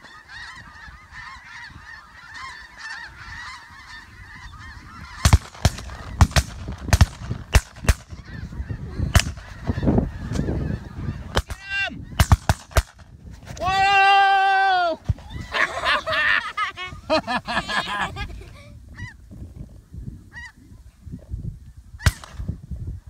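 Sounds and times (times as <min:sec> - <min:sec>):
geese honking overhead: 0:00.0 - 0:12.3, 0:20.3 - 0:20.6
shotgun shots: 0:05.2 - 0:08.1, 0:09.1 - 0:09.5, 0:11.3 - 0:11.6, 0:12.2 - 0:13.0, 0:22.0 - 0:22.5.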